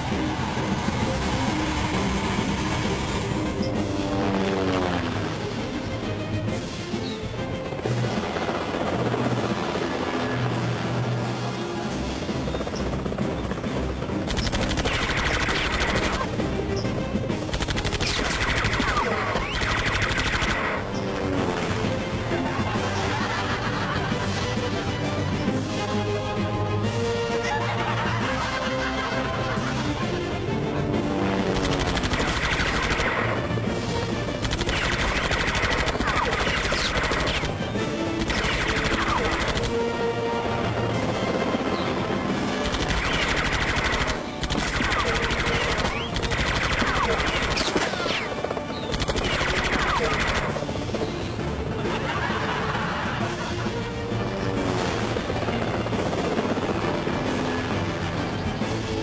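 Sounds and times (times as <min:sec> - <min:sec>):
music: 0:00.0 - 0:59.0
rapid machine-gun fire: 0:14.1 - 0:16.4, 0:17.3 - 0:21.9, 0:31.3 - 0:41.5, 0:42.4 - 0:50.8
automatic gunfire bursts: 0:14.3 - 0:16.3, 0:17.5 - 0:20.8, 0:31.6 - 0:33.4, 0:34.4 - 0:39.8, 0:42.6 - 0:50.6.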